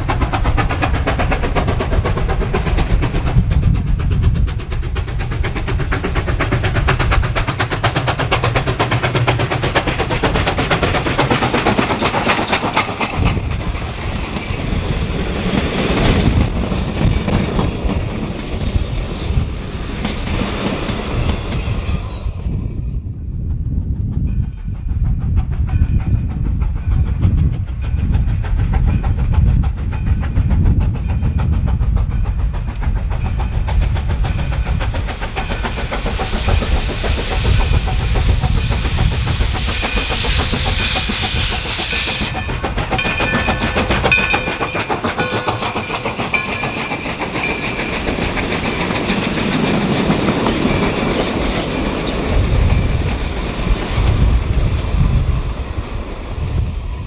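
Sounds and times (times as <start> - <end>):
wheels clacking over rail joints: 0.0 - 21.8, 32.4 - 53.9
steam train rolling by: 0.0 - 57.0
loud steam hiss: 5.6 - 14.9, 33.6 - 54.4
high squeal tones: 34.4 - 53.8.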